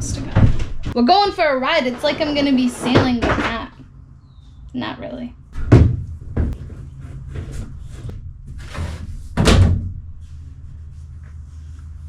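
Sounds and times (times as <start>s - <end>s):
boat hull knocking and clunking: 5.5s - 8.5s.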